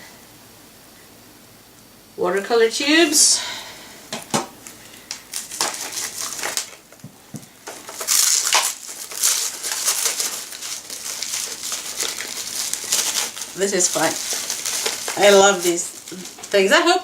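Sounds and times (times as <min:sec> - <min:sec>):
packaging rustling and crinkling: 0:04.2 - 0:17.0.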